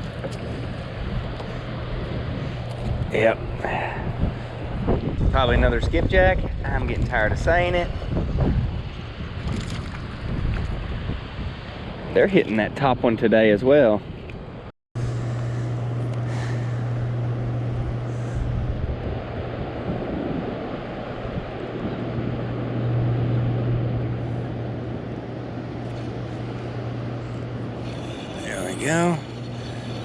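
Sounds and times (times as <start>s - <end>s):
low mechanical drone: 0.0s - 13.2s, 14.0s - 30.0s.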